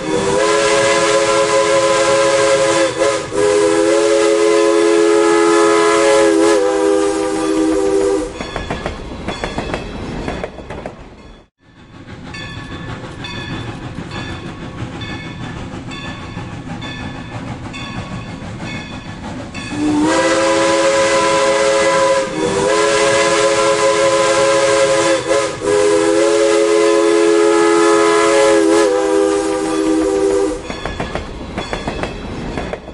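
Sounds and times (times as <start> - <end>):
steam locomotive chime whistle: 0.0 - 9.6, 11.6 - 32.6
train wheels clickety-clack: 8.2 - 32.9.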